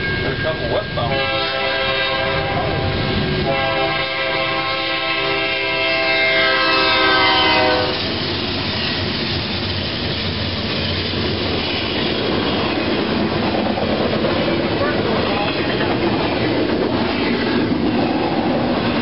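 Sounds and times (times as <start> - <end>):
freight train rushing past: 0.0 - 19.0
locomotive air horn: 1.0 - 8.2.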